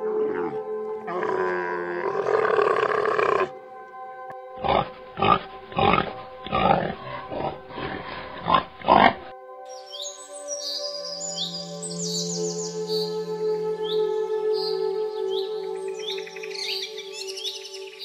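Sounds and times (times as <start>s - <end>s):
boar grunting: 0.0s - 3.6s, 4.6s - 9.3s
camel groaning: 0.0s - 3.6s, 4.6s - 9.3s
soft background music: 0.0s - 18.0s.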